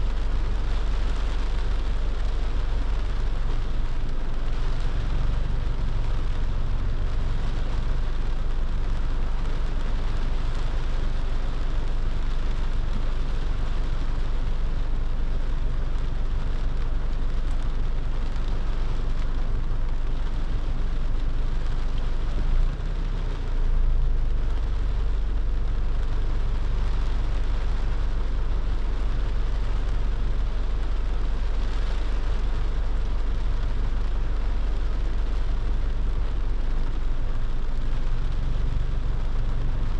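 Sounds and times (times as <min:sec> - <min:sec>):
car road and engine rumble: 0:00.0 - 0:39.9
rain and wet tyres hiss: 0:00.0 - 0:39.9.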